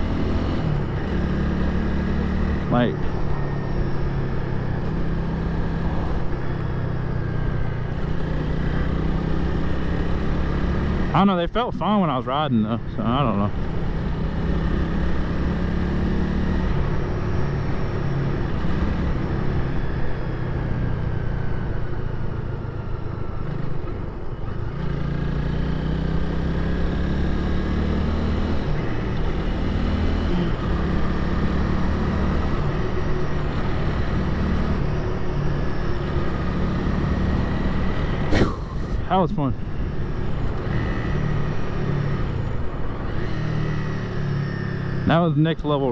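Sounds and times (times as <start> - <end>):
motorcycle engine running: 0.0 - 45.2
rush of wind: 38.0 - 44.2.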